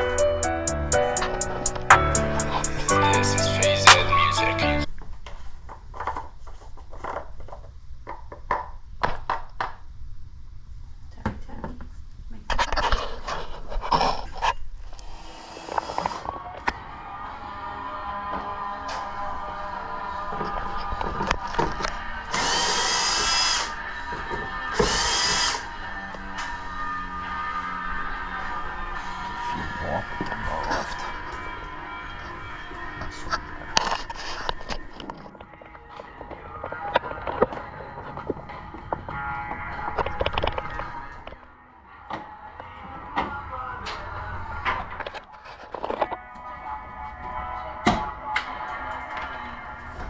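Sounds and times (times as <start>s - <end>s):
music: 0.0s - 4.9s, 16.1s - 50.0s
power tool whining: 14.9s - 35.2s.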